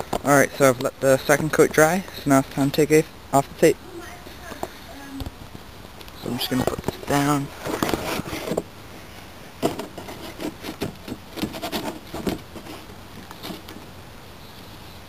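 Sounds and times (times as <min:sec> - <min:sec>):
knocks rubs and scrapes: 0:06.4 - 0:08.7, 0:09.5 - 0:13.8.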